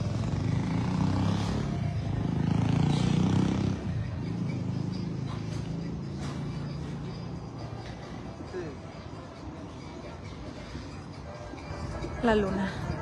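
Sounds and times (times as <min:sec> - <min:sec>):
vehicle engine passing: 0:00.0 - 0:07.8.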